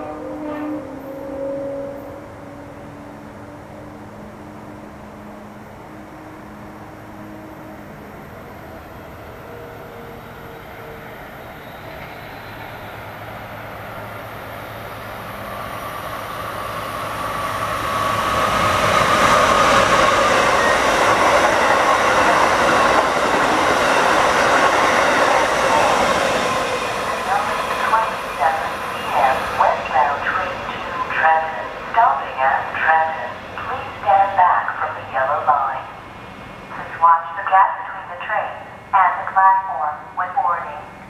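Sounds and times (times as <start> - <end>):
wheels rushing on rail: 0.0 - 31.9
high-speed train passing: 0.0 - 41.0.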